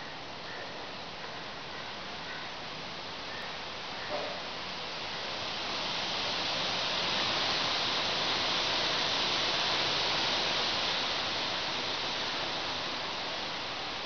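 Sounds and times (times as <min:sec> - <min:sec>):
wind gusting through trees: 0:00.0 - 0:14.0
rain falling: 0:03.7 - 0:14.0.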